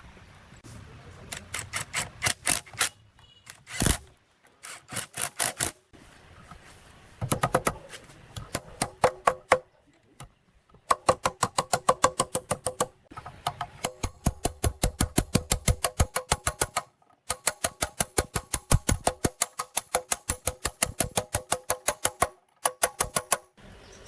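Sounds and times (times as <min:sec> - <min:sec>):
rapid tapping strikes: 0:10.8 - 0:23.6.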